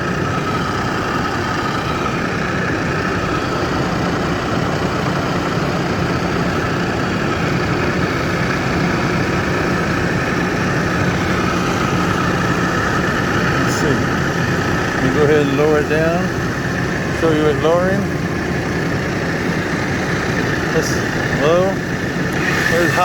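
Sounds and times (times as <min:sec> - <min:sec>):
gear head whine: 0:00.0 - 0:23.0
drill press hum: 0:07.3 - 0:23.0.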